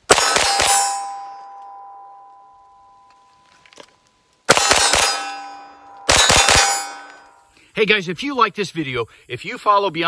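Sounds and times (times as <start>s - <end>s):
rifle shots: 0.0s - 1.3s, 4.5s - 7.2s
steel targets ringing: 0.1s - 3.5s, 4.5s - 7.5s.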